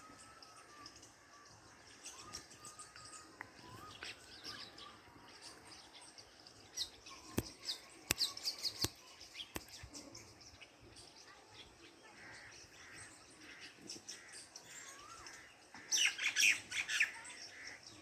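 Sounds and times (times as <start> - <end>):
sharp clicks or taps: 9.6 - 9.8.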